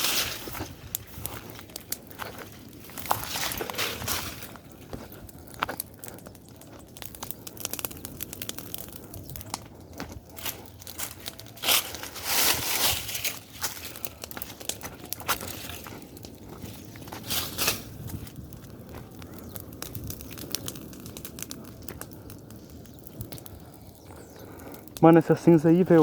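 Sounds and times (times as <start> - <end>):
bonfire crackling and popping: 0.0 - 26.0
rustling: 10.4 - 18.3.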